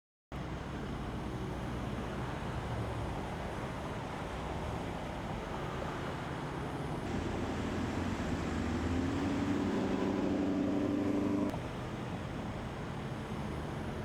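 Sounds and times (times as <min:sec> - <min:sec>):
highway traffic noise: 0:00.3 - 0:14.0
passing vehicle engine hum: 0:05.4 - 0:11.9.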